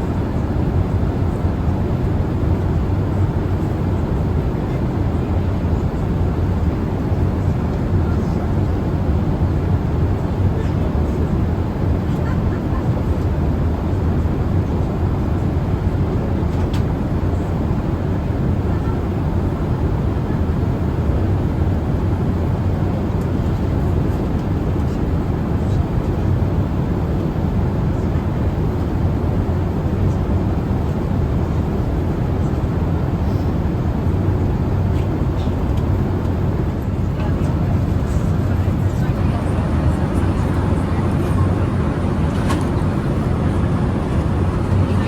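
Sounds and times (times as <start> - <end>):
airplane cabin drone: 0.0 - 45.0.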